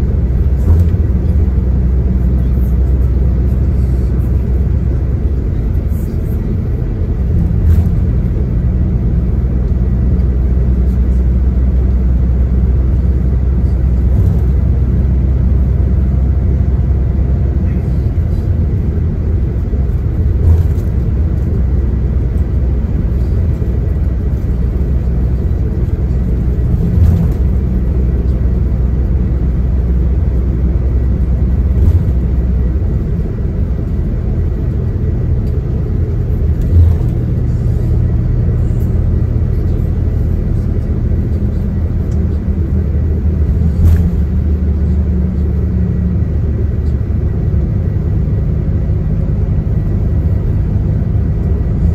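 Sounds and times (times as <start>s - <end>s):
engine and road rumble: 0.0s - 51.9s
thumps from road bumps: 0.4s - 1.5s, 19.9s - 21.5s, 31.6s - 32.7s, 43.5s - 44.5s.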